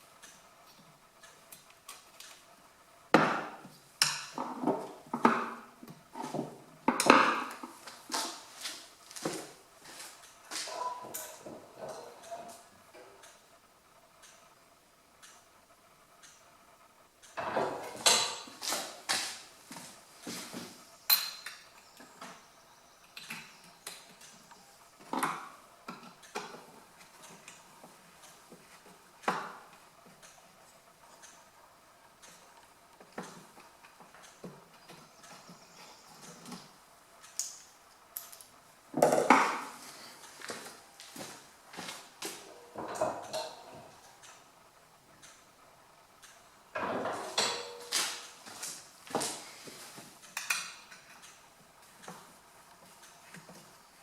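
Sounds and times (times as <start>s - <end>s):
metal clanks and knocks: 17.4s - 18.6s, 42.3s - 43.9s, 46.8s - 48.2s
metal frame knocking and clanking: 46.8s - 48.2s.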